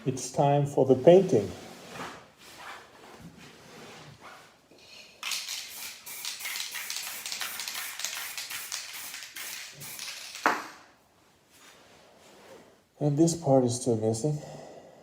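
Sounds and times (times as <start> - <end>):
spray paint can hissing: 5.2 - 10.9.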